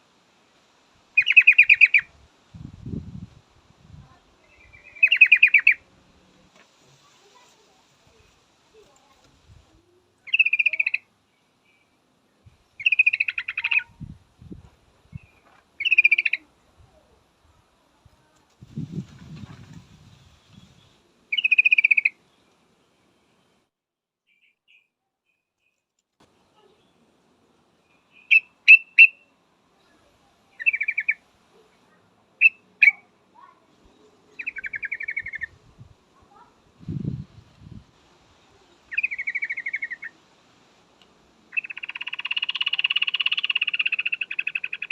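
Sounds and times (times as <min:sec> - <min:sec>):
bird chirping and trilling: 0:01.2 - 0:02.0, 0:04.5 - 0:05.8, 0:10.3 - 0:11.0, 0:12.8 - 0:14.0, 0:15.2 - 0:16.4, 0:20.3 - 0:22.2, 0:27.9 - 0:29.2, 0:30.6 - 0:31.2, 0:32.4 - 0:33.0, 0:34.3 - 0:35.6, 0:38.9 - 0:40.1, 0:41.5 - 0:44.9
bird bubbly chattering call: 0:01.2 - 0:02.1, 0:05.0 - 0:05.8, 0:12.8 - 0:13.9, 0:38.9 - 0:40.1, 0:41.5 - 0:44.9.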